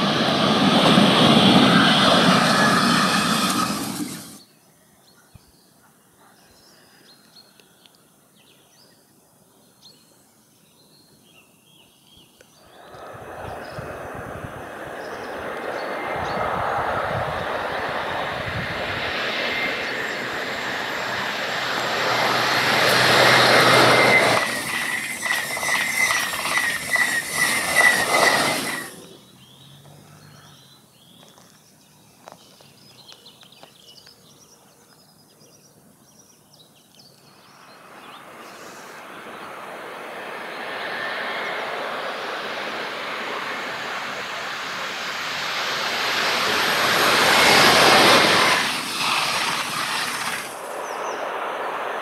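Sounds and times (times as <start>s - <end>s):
high-speed train passing: 0.0s - 4.4s, 12.6s - 30.0s, 37.3s - 52.0s
pulsing high whine: 0.0s - 4.4s, 12.6s - 29.4s, 37.9s - 52.0s.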